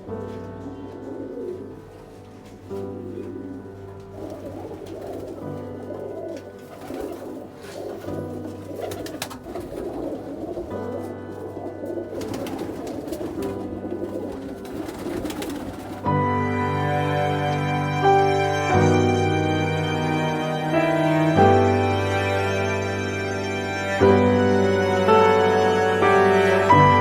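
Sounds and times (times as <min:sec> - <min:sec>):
background music sustained tones: 0:00.0 - 0:27.0
pigeons cooing: 0:00.7 - 0:16.1.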